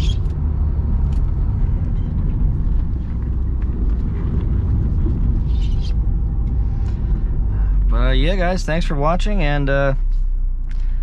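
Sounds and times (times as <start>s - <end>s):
car engine from inside cabin: 0.0s - 11.0s
road noise: 0.0s - 11.0s.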